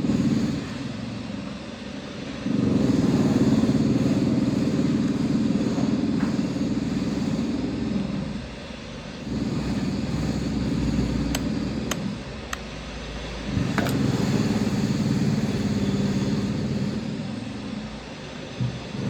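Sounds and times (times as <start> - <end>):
motor humming: 9.2 - 19.0.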